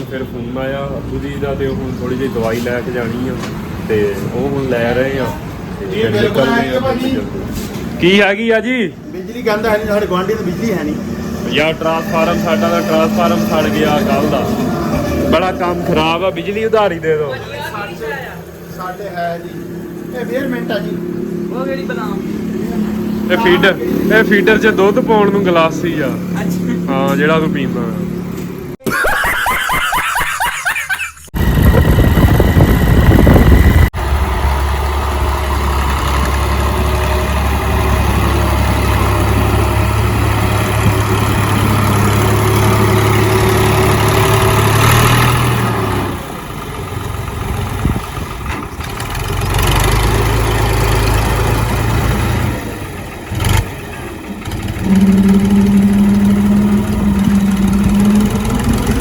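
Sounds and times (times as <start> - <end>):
vehicle engine running: 31.4 - 59.0.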